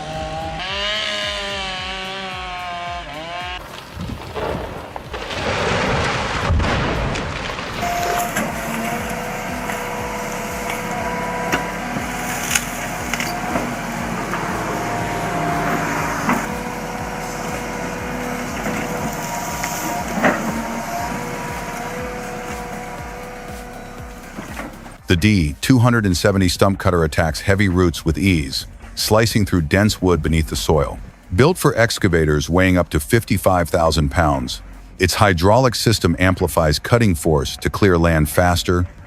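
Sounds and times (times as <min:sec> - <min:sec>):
heavy machinery engine and hydraulic whine: 0:00.0 - 0:25.1
loud rushing noise: 0:03.2 - 0:25.2
sharp cracks and knocks: 0:03.5 - 0:08.9.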